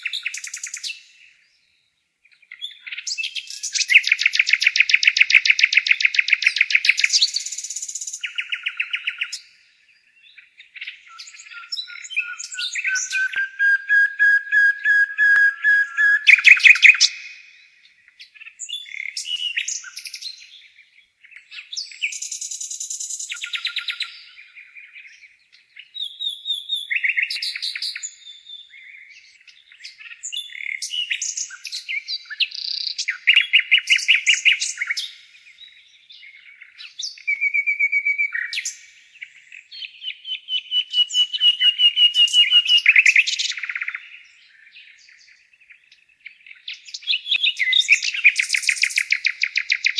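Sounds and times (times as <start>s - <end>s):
nightingale singing: 0.0s - 49.9s.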